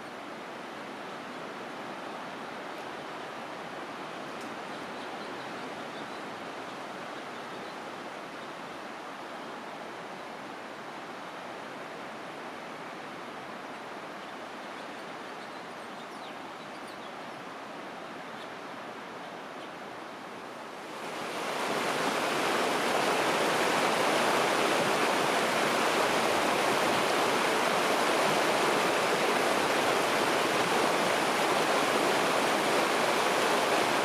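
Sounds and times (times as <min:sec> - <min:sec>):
water rushing: 0:20.2 - 0:34.0.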